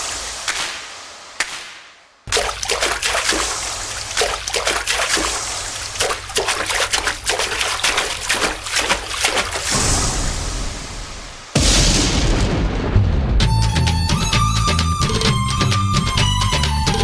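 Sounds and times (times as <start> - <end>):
water splashing and trickling: 2.3 - 11.5.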